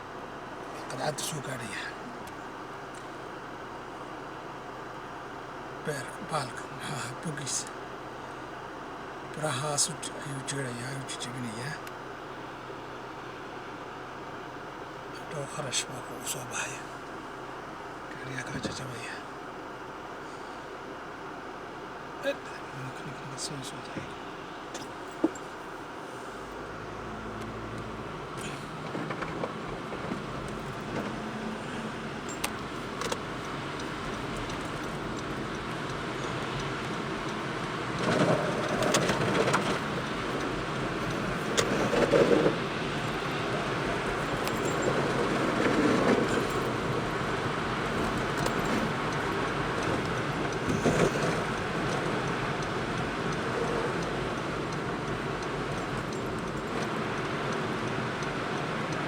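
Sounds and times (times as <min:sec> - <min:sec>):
car road and engine noise: 0:00.0 - 0:59.0
light rattling clicks: 0:32.2 - 0:59.0.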